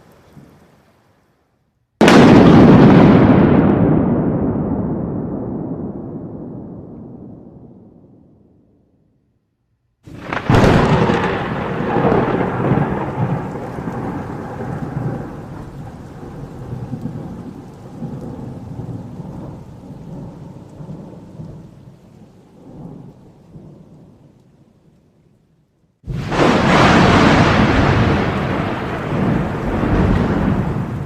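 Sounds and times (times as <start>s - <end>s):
thunder crack and rumble: 2.0s - 8.6s, 10.1s - 21.8s, 26.1s - 31.0s.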